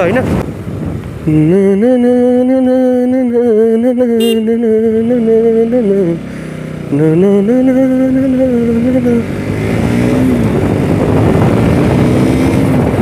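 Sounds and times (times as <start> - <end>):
motorcycle riding noise: 0.0 - 13.0
person singing long held notes: 1.2 - 9.4.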